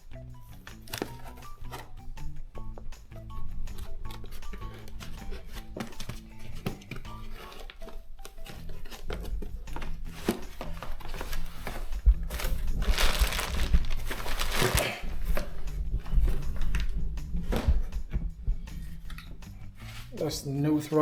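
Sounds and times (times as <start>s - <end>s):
packaging rustling: 0.8s - 1.9s, 3.8s - 16.9s.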